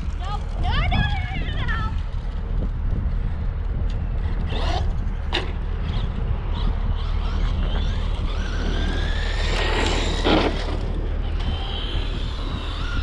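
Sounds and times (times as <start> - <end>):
toy truck electric motor whining: 4.5 - 13.0.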